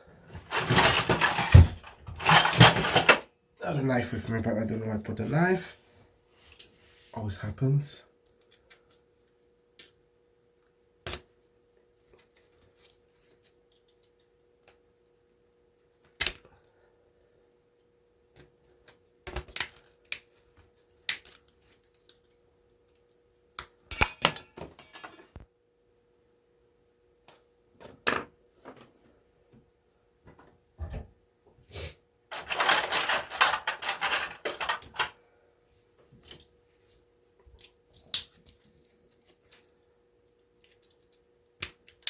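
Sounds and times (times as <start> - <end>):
clattering rattle: 0.4 - 3.2, 32.3 - 35.1
tools and scrap parts clicking: 0.4 - 3.2, 23.9 - 25.4, 32.3 - 35.2.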